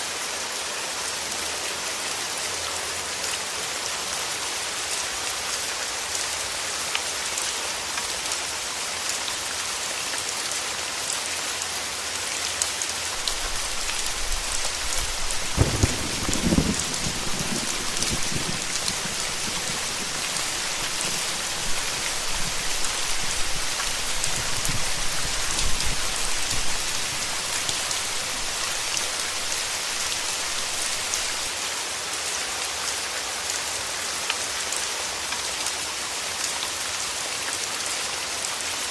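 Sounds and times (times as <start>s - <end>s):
steady rain falling: 0.0s - 38.9s
thunder rumbling: 13.2s - 31.4s.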